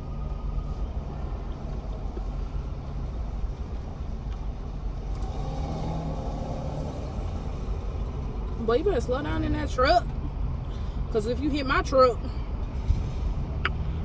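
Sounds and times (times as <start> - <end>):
low vehicle rumble: 0.0 - 14.0
truck driving past: 5.1 - 10.7.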